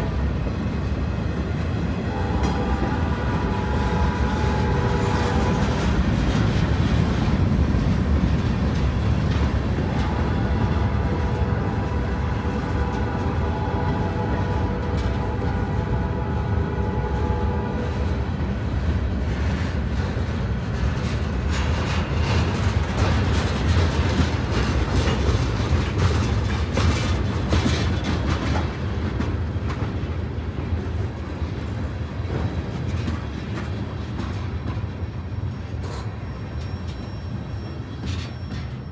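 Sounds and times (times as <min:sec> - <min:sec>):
freight train rumbling past: 0:00.0 - 0:38.9
wheels clicking over rail joints: 0:20.7 - 0:38.9.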